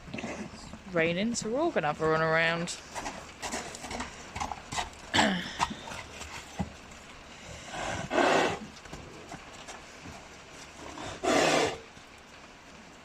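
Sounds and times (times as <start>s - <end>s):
hoofbeats: 0.0s - 12.1s
horse snorting blast: 7.6s - 8.7s, 10.8s - 11.8s.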